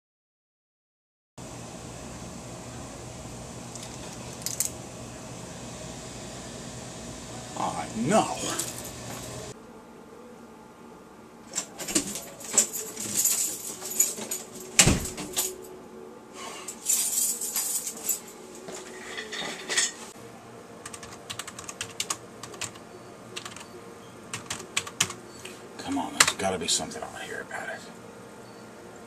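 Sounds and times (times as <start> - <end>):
objects clattering and knocking: 11.5 - 15.6, 16.7 - 20.1
typing on computer keyboard: 20.8 - 22.8, 23.4 - 23.7, 24.3 - 25.2.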